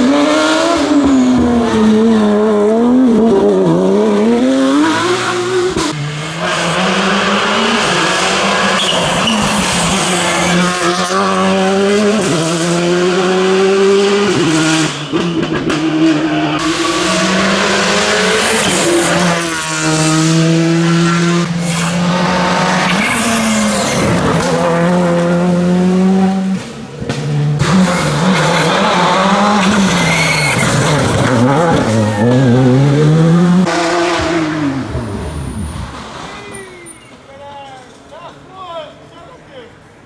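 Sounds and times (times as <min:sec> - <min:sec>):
rally car engine revving: 0:00.0 - 0:37.1
tyre squeal: 0:07.8 - 0:11.7, 0:16.3 - 0:20.0, 0:21.5 - 0:24.7, 0:27.7 - 0:33.2, 0:35.0 - 0:37.4.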